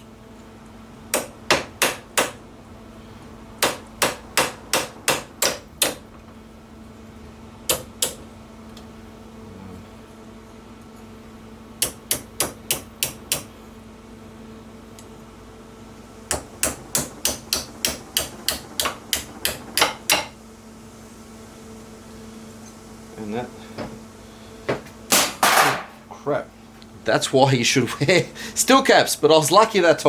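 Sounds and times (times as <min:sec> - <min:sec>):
hammer striking sheet metal: 0:01.1 - 0:02.4, 0:03.6 - 0:06.1, 0:07.7 - 0:08.2, 0:16.3 - 0:20.4.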